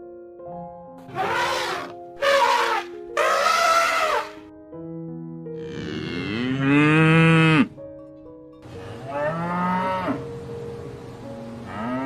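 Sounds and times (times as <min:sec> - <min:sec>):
soft background music: 0:00.0 - 0:12.0
cow mooing: 0:01.1 - 0:04.4, 0:05.6 - 0:07.8, 0:08.7 - 0:10.3, 0:11.7 - 0:12.0.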